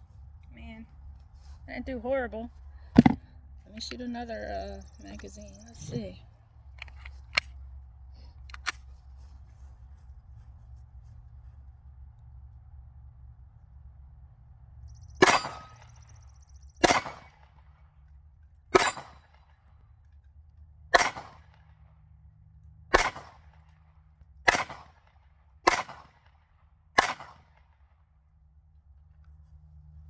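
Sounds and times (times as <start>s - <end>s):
pistol shots: 15.2s - 15.9s, 16.8s - 17.4s, 18.8s - 19.3s, 20.9s - 21.6s, 22.9s - 23.5s, 24.5s - 25.0s, 25.6s - 26.3s, 27.0s - 27.6s.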